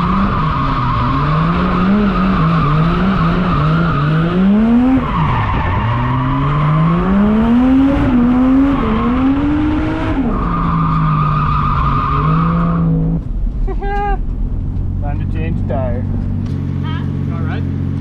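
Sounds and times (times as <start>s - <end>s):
car engine revving hard: 0.0s - 13.3s.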